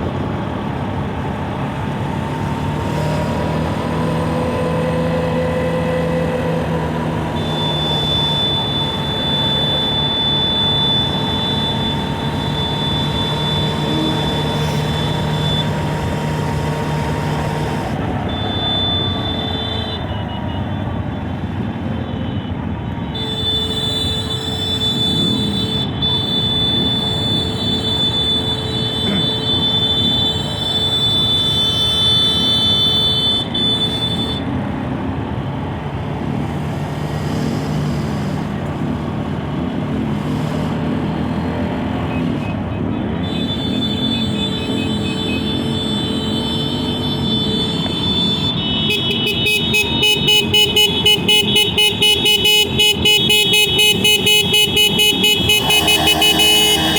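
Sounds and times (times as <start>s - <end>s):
road noise: 0.0s - 56.9s
truck engine running: 47.3s - 56.9s.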